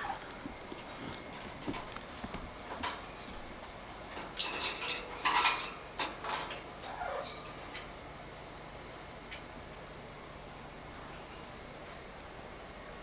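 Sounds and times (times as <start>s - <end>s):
handling clicks and clatters: 0.2s - 7.9s.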